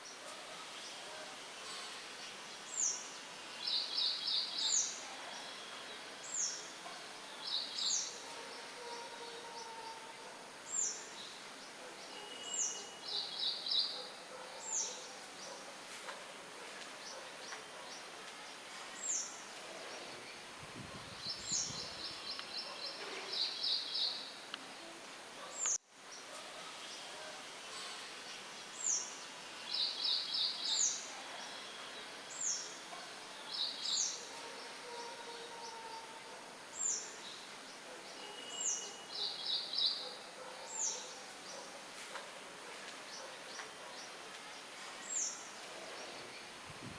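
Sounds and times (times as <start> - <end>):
light wind through leaves: 0.0 - 46.9
songbirds chirping: 0.0 - 46.9.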